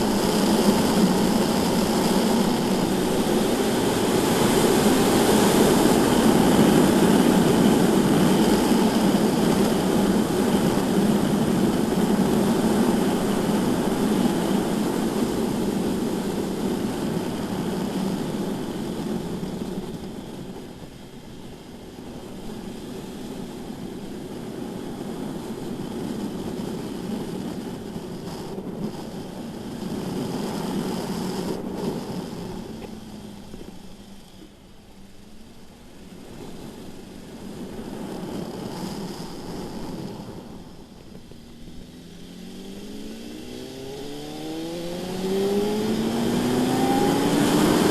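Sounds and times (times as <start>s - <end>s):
wind rushing: 0.0s - 20.3s, 36.5s - 47.9s
motorcycle engine: 0.0s - 47.9s.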